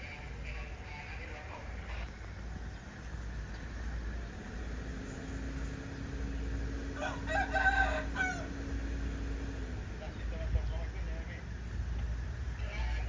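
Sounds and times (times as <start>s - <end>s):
rooster crowing: 7.0s - 8.9s.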